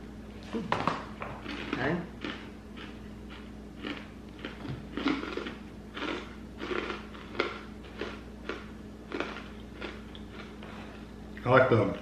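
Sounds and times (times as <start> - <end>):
crunchy snack being chewed: 1.4 - 10.8.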